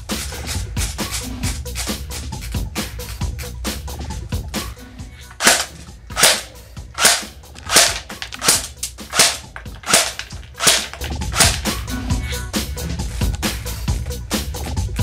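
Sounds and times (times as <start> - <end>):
airsoft rifle firing single shots: 5.4 - 11.7.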